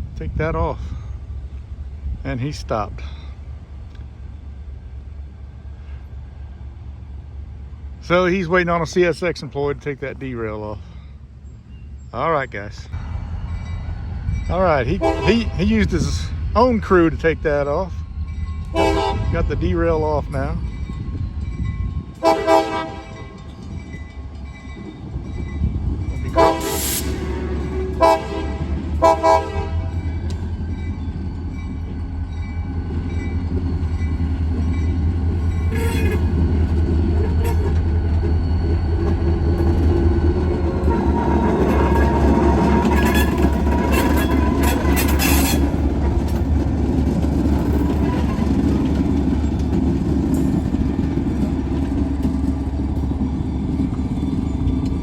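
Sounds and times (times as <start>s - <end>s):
diesel engine rumbling: 0.0s - 22.9s
locomotive air horn blasts: 15.0s - 15.6s, 18.7s - 19.4s, 22.2s - 23.3s, 26.3s - 30.0s, 35.7s - 36.4s, 40.8s - 45.6s.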